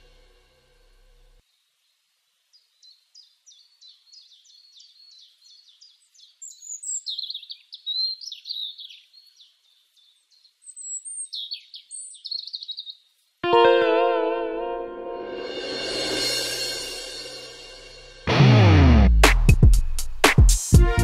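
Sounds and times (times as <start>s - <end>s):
songbird singing: 1.5s - 13.4s.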